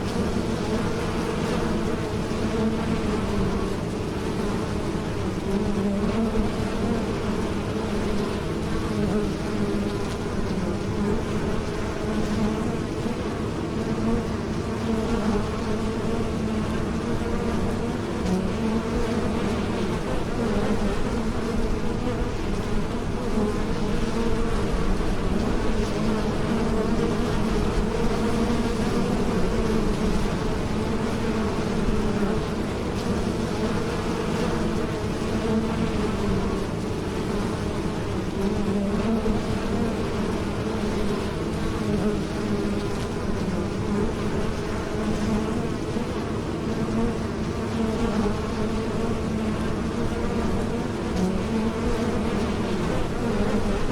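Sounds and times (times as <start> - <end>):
bees buzzing: 0.0 - 53.9.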